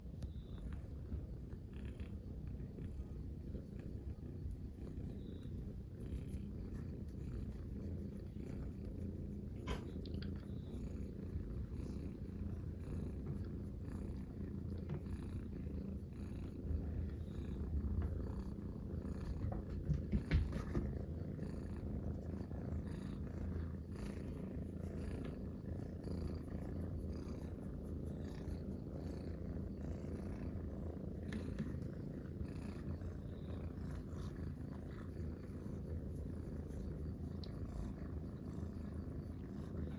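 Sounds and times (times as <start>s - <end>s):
cats purring: 0.0s - 39.9s.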